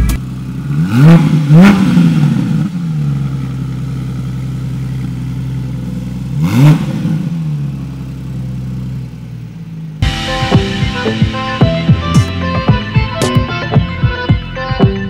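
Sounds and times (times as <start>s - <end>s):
sports car engine idling and revving: 0.0s - 10.1s.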